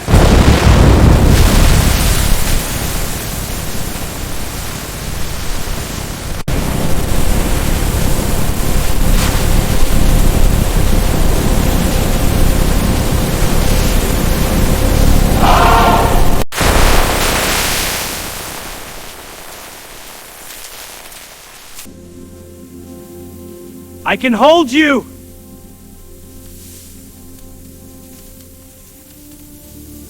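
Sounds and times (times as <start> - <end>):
heavy rain and floodwater rushing: 0.2 - 20.2.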